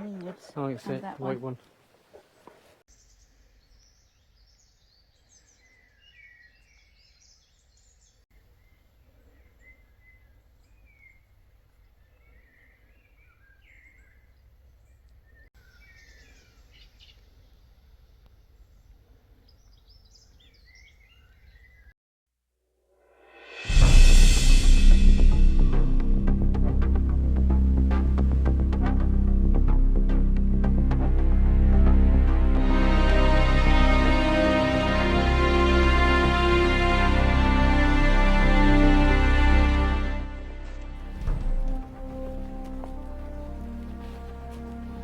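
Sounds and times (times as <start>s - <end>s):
small birds chirping and trilling: 1.5s - 21.9s
low steady rumble: 40.4s - 45.0s.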